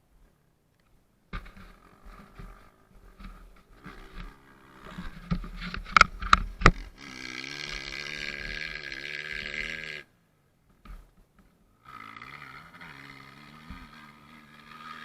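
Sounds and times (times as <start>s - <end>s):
dirt bike engine pops: 1.3s - 9.9s, 10.7s - 11.6s, 12.9s - 15.0s
dirt bike engine running: 1.3s - 10.1s, 10.8s - 15.0s.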